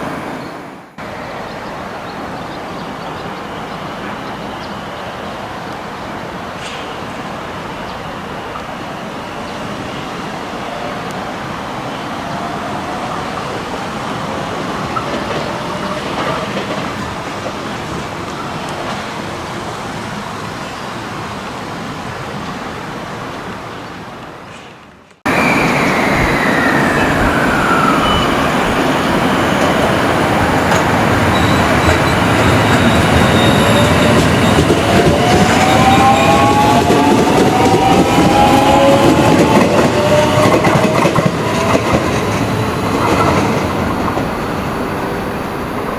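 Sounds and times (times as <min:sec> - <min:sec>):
falling train tone: 0:00.0 - 0:23.6, 0:25.3 - 0:45.9
train rumbling on rails: 0:00.0 - 0:45.9
rising whining tones: 0:25.3 - 0:40.7.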